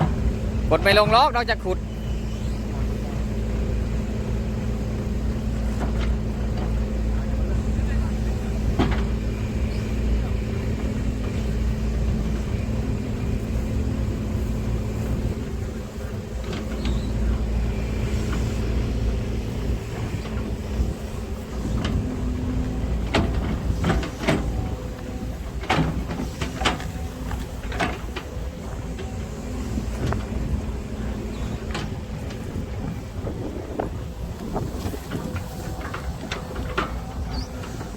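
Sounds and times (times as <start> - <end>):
excavator diesel engine running: 0.0 - 37.9
sharp knocks and clunks: 8.6 - 9.2, 21.5 - 32.5.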